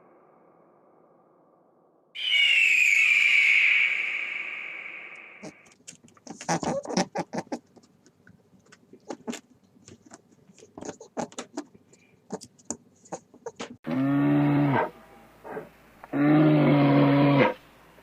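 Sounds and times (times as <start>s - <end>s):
loud low drawn-out animal call: 2.2s - 5.7s, 13.9s - 17.6s.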